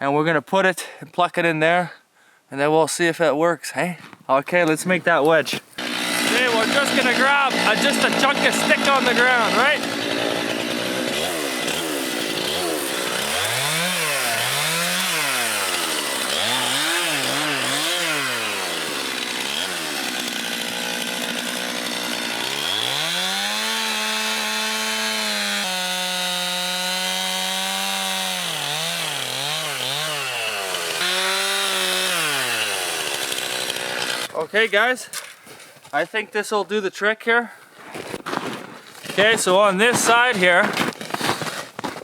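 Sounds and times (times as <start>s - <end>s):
chainsaw engine revving: 5.8s - 34.3s.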